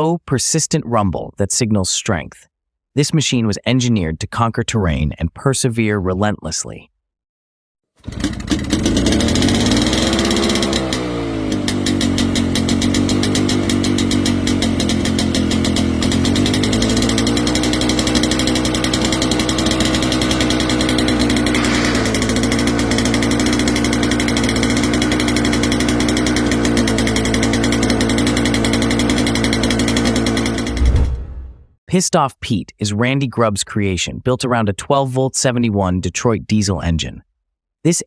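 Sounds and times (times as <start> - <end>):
diesel engine rumbling: 8.1 - 31.6.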